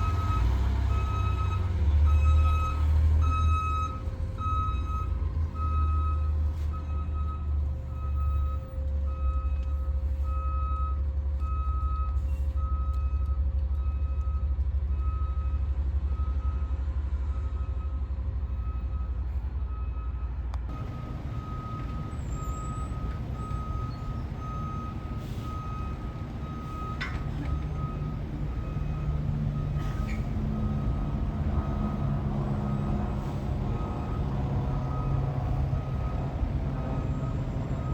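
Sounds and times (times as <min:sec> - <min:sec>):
truck engine rumble: 0:00.0 - 0:16.3, 0:18.0 - 0:37.9
backup alarm beeping: 0:20.7 - 0:37.9.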